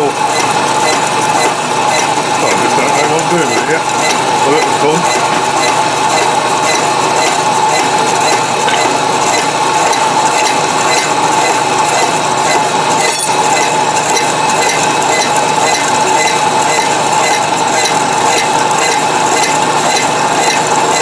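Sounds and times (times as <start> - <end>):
milling machine cutting steel: 0.0 - 21.0.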